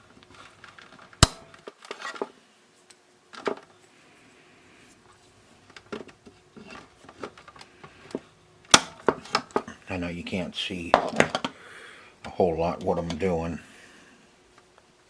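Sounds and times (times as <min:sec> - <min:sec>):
handling clatter: 0:10.9 - 0:11.6.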